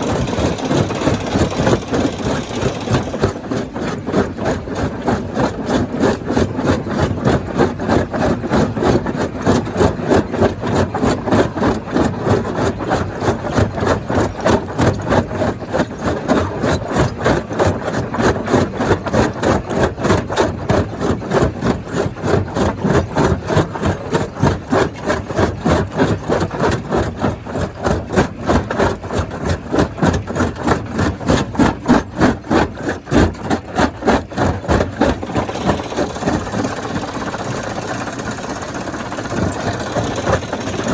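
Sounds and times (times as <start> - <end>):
stone crusher clattering: 30.1 - 40.9.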